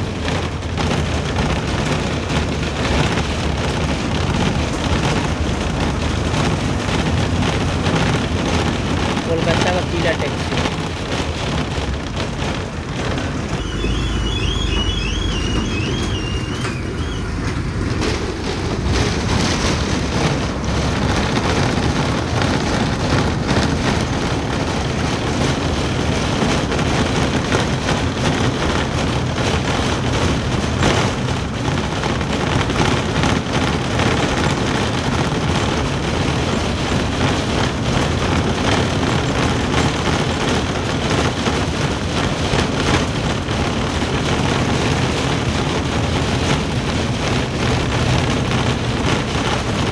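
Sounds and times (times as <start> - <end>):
truck engine and road noise: 0.0 - 49.9
warbling high tone: 13.3 - 17.6.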